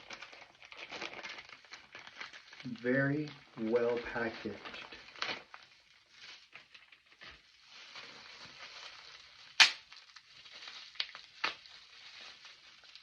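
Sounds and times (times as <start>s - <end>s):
packaging bag crinkling: 0.0s - 13.0s
loud sharp snap: 9.6s - 9.8s.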